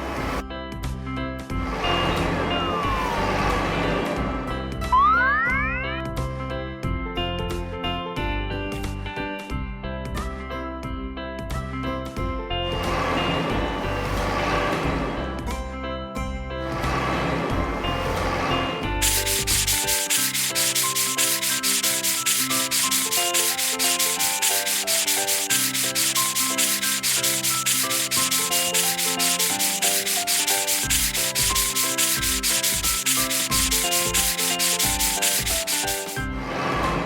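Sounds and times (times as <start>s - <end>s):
rapid scrubbing sound effect: 1.6s - 4.3s, 12.8s - 15.4s, 16.8s - 37.0s.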